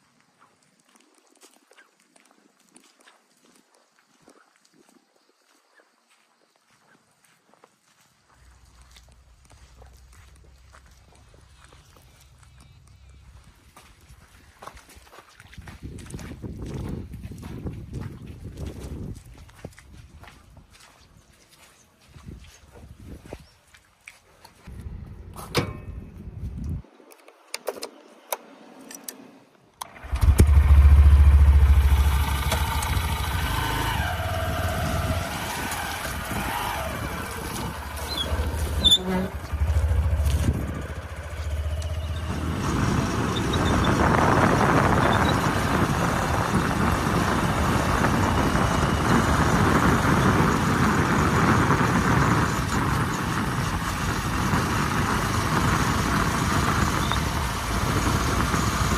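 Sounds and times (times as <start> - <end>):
rough loud noise: 29.8 - 58.9
tractor engine running: 29.8 - 58.9.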